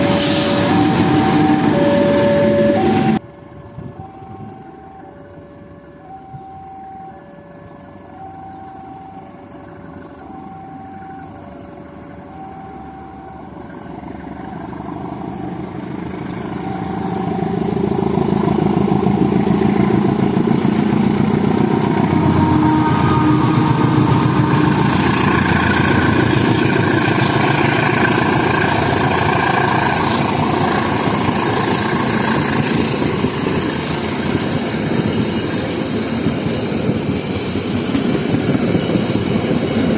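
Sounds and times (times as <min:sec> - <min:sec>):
level-crossing alarm ding-dong: 0:00.0 - 0:03.2
diesel locomotive passing: 0:00.0 - 0:39.9.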